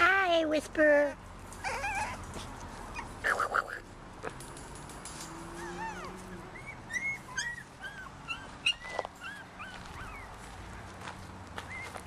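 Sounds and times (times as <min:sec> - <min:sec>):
puppies whining and yipping: 0:01.6 - 0:03.2, 0:05.5 - 0:10.4, 0:11.6 - 0:12.0.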